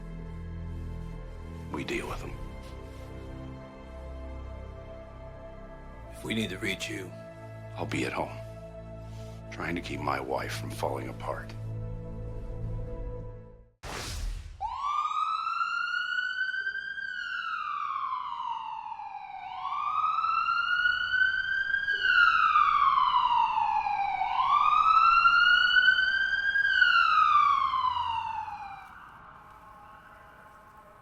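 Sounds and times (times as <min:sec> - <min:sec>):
wailing siren: 0:14.6 - 0:31.0.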